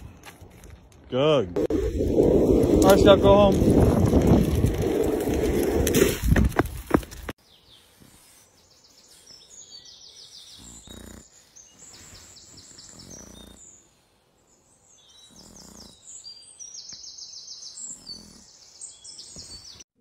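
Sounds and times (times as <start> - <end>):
songbirds trilling: 7.4 - 19.8.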